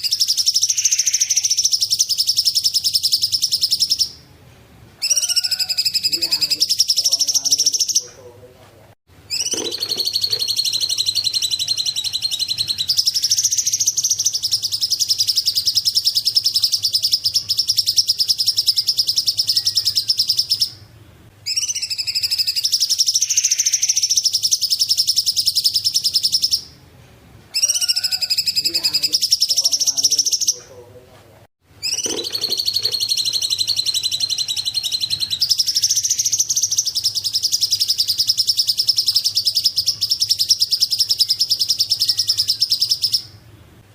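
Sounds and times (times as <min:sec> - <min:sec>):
songbird buzzy trills: 0:00.0 - 0:04.3, 0:09.3 - 0:26.8, 0:31.8 - 0:43.6.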